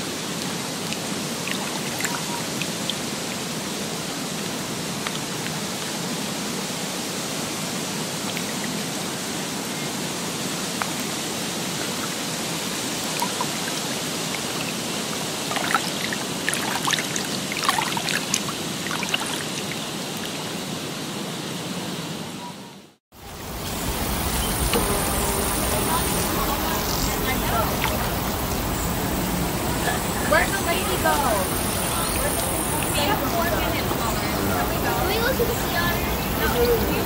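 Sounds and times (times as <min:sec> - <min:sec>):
rushing water: 0:00.0 - 0:22.5, 0:23.1 - 0:37.0
small splashes and drips: 0:00.3 - 0:05.9, 0:10.8 - 0:20.4.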